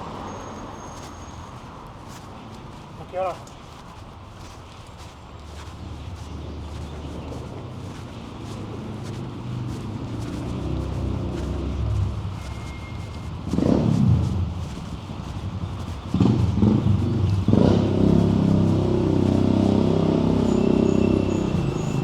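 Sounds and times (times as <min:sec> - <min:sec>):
vehicle passing: 0:04.4 - 0:22.0
heavy vehicle engine running: 0:09.7 - 0:22.0.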